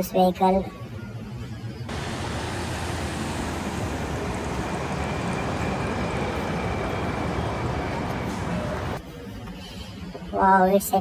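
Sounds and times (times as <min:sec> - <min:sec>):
steady rushing noise: 0:01.9 - 0:09.0.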